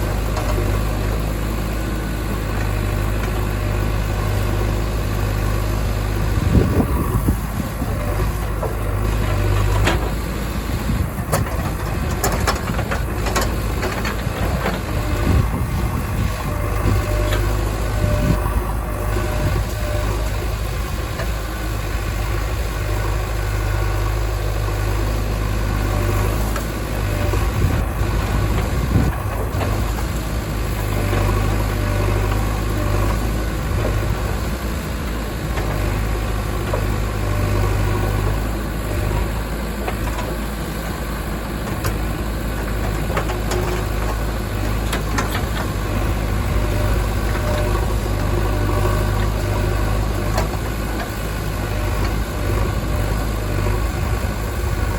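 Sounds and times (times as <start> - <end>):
diesel engine running: 0.0 - 54.9
engine knocks: 6.3 - 23.8, 26.0 - 37.1.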